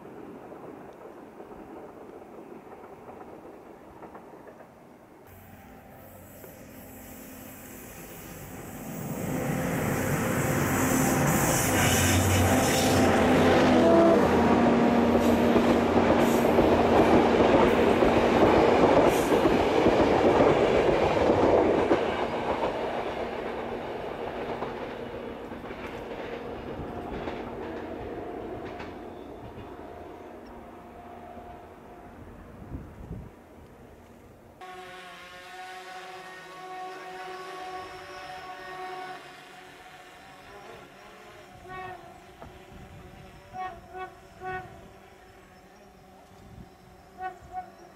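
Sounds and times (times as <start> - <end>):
passenger train passing: 0.0 - 47.9
wheels on rails: 7.9 - 30.7.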